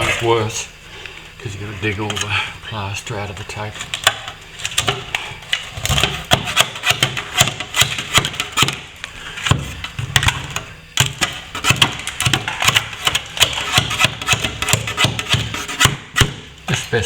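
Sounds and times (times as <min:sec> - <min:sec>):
metal tools scraping plaster: 0:01.6 - 0:10.0, 0:10.6 - 0:17.0.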